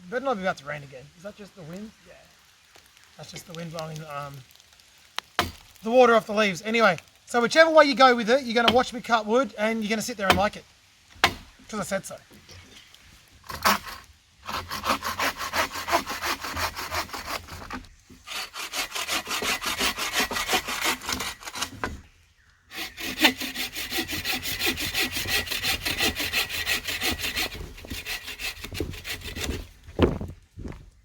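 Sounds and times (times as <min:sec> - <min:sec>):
hand saw cutting wood: 0:08.6 - 0:08.9, 0:13.4 - 0:22.0, 0:22.7 - 0:29.7.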